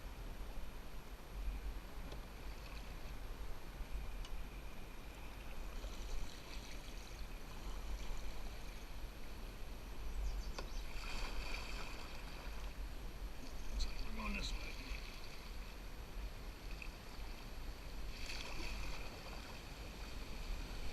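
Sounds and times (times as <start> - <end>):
river water running: 0.0 - 20.9
light water splashing: 5.3 - 8.7, 10.5 - 12.8, 13.4 - 15.7, 18.1 - 20.2.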